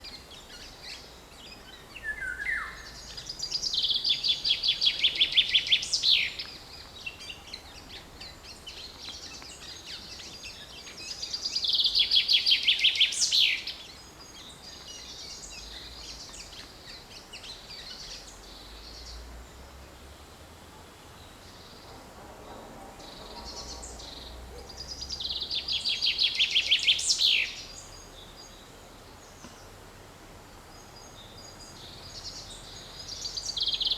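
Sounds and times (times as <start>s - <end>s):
chaffinch singing: 0.0s - 20.1s, 23.0s - 29.6s.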